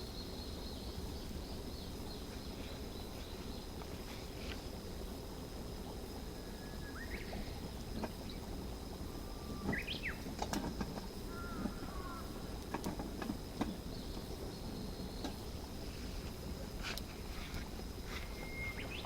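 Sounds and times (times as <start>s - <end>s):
small birds chirping: 0.0s - 4.6s, 5.7s - 12.8s, 13.5s - 15.7s, 18.1s - 19.0s
sharp clicks and knocks: 12.6s - 13.8s.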